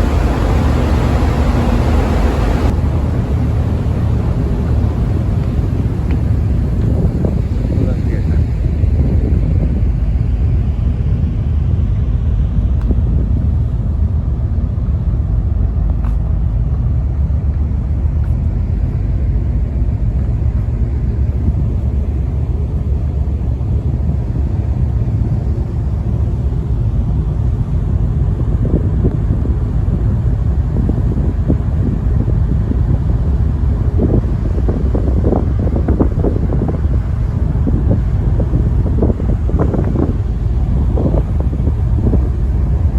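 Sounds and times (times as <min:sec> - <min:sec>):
ferry low rumble: 0:00.0 - 0:42.9.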